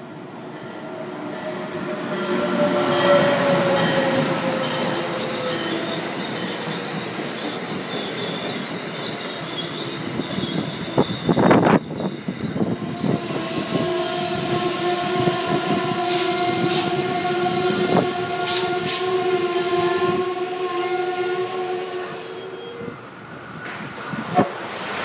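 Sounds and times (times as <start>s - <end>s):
train rumbling: 0.0s - 25.0s
wheels and brakes squealing: 3.0s - 23.9s
brief air hisses: 16.1s - 16.9s, 18.4s - 19.2s.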